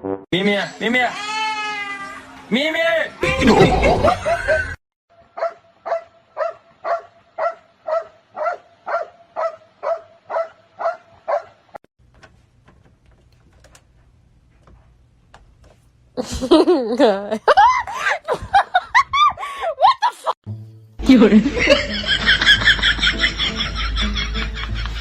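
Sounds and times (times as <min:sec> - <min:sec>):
dog barking: 0:05.4 - 0:11.6.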